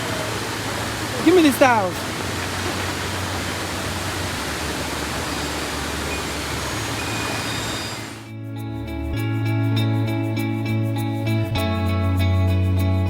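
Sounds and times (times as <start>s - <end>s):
waterfall rushing: 0.0s - 8.3s
soft guitar music: 8.3s - 13.0s.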